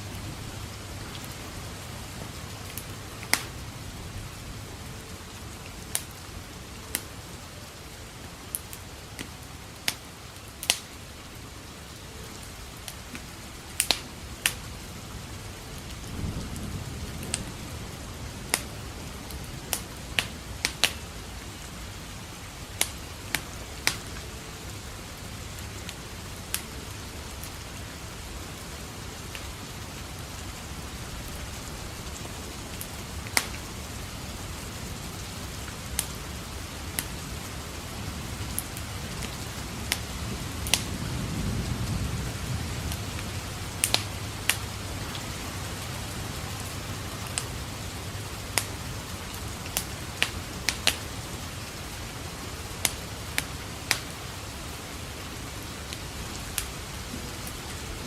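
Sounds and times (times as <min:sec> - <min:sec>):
wood fire crackling and popping: 0:00.0 - 0:11.2, 0:11.9 - 0:57.9
steady rain: 0:00.0 - 0:58.0
low thunder rumble: 0:14.7 - 0:22.3, 0:28.0 - 0:48.3.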